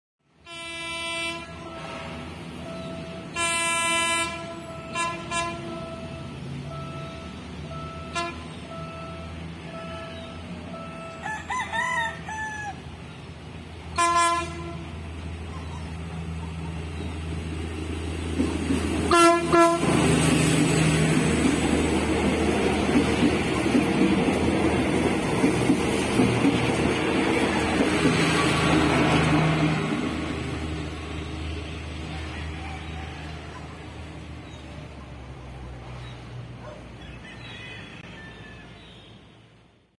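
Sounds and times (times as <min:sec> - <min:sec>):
train engine and wheels rumbling: 0:00.2 - 0:39.9
train horn blasts: 0:00.4 - 0:11.4, 0:13.9 - 0:15.3, 0:19.0 - 0:20.5
rooster crowing: 0:10.9 - 0:13.0, 0:32.0 - 0:33.8, 0:37.0 - 0:38.8.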